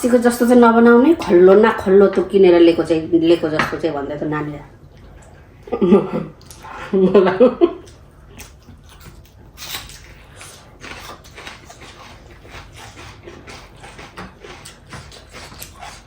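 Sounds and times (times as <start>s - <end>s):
chewing and lip smacking: 7.8s - 16.0s.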